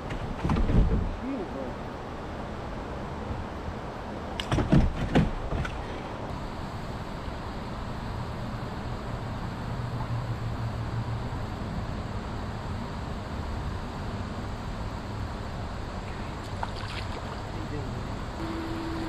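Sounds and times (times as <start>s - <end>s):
hiss of wind and water: 5.7s - 19.0s.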